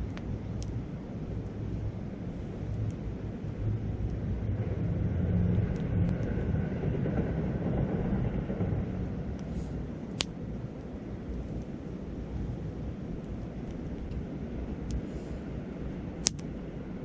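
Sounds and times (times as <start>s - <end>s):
campfire wood crackle: 0.0s - 17.0s
wind rumbling on microphone: 0.0s - 17.0s.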